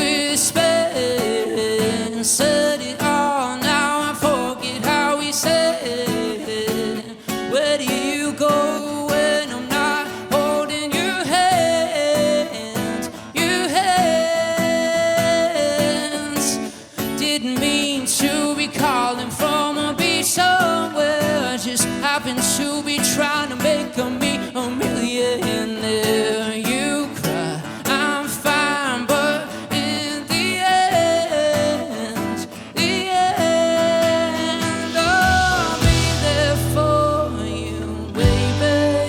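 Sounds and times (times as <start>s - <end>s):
person singing: 0.0s - 39.0s
guitars playing: 31.9s - 39.0s.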